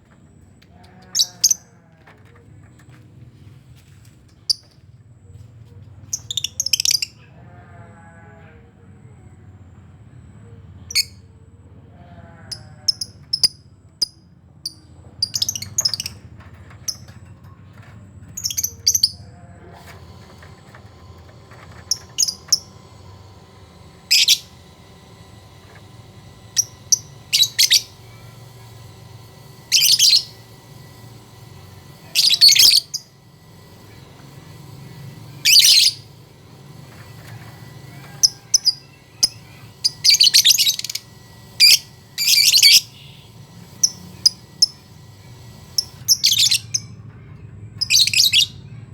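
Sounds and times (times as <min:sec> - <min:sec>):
low steady hum: 0:15.0 - 0:48.2
lovebirds chirping shrilly: 0:19.8 - 0:46.8.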